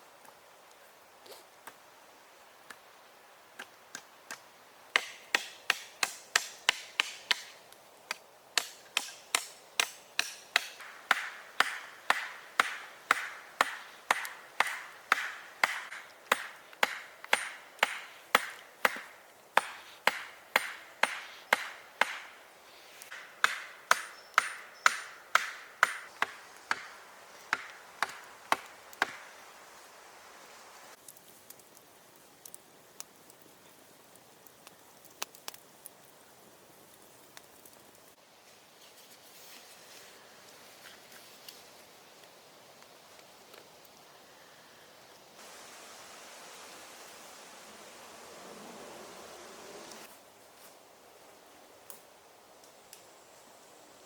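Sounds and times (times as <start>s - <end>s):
hand tool striking wood: 5.0s - 7.6s, 8.6s - 22.4s, 23.1s - 29.2s.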